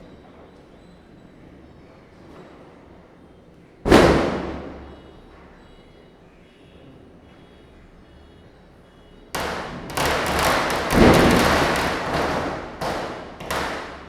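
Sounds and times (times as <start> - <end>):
firecrackers bursting: 3.9 - 5.2, 9.3 - 14.0.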